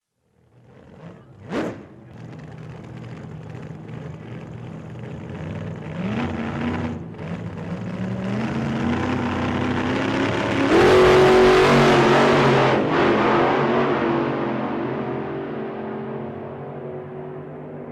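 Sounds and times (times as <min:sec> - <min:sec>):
racing car engines revving: 0:00.5 - 0:17.9
car passing close: 0:10.7 - 0:13.8.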